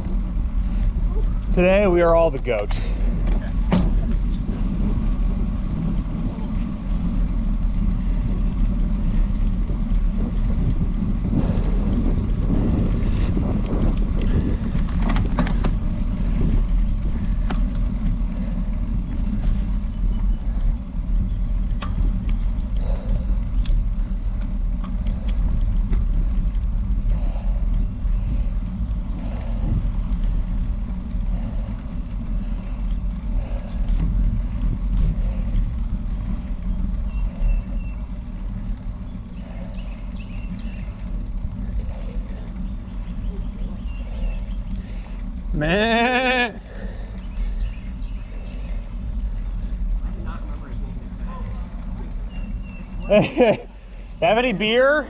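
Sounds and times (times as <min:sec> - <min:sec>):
wind on microphone: 0:00.0 - 0:54.3
road noise: 0:00.0 - 0:55.0
faint clicks: 0:17.4 - 0:45.5, 0:46.2 - 0:54.1.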